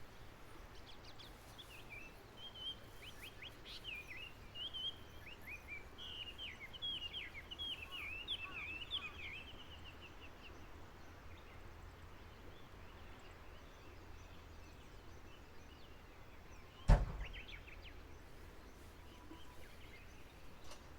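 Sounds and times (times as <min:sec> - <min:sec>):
faint outdoor background noise: 0:00.0 - 0:20.9
songbird chirping: 0:00.0 - 0:20.9
sharp knock: 0:16.9 - 0:17.5.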